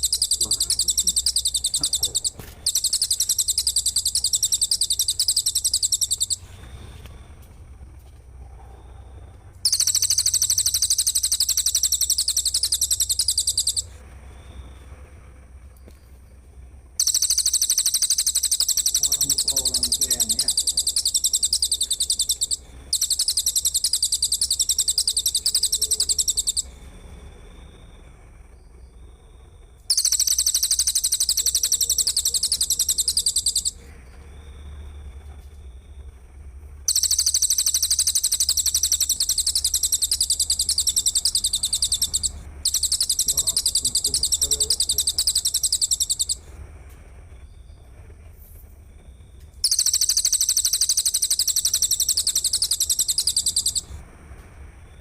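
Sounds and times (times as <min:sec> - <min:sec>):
high-pitched bird trill: 0:00.0 - 0:06.5, 0:09.6 - 0:13.9, 0:17.0 - 0:26.7, 0:29.9 - 0:33.8, 0:36.9 - 0:46.4, 0:49.6 - 0:53.9.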